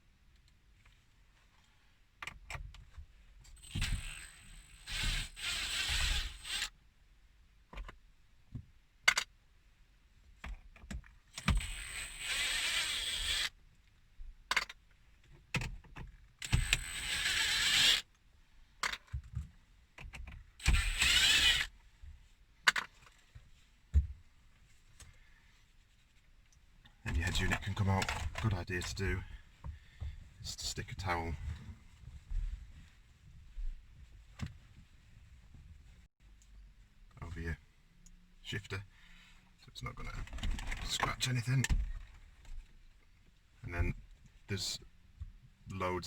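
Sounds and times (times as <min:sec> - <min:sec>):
battery screwdriver running: 0:03.6 - 0:06.7, 0:11.4 - 0:13.5, 0:16.4 - 0:18.0, 0:20.6 - 0:21.7
small clicks of screws: 0:09.0 - 0:09.3, 0:10.4 - 0:13.6, 0:14.5 - 0:18.2, 0:18.8 - 0:19.3, 0:20.0 - 0:21.7, 0:22.6 - 0:23.2.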